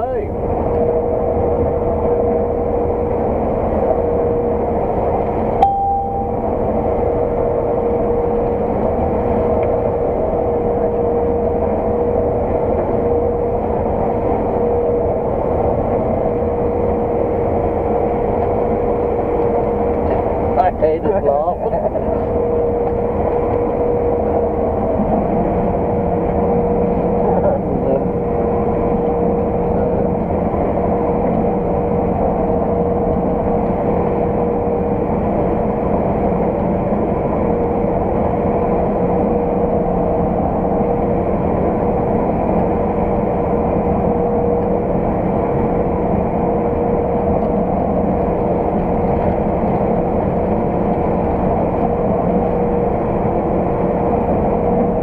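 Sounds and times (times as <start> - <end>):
constant whine: 0.0 - 55.0
low engine rumble: 0.0 - 55.0.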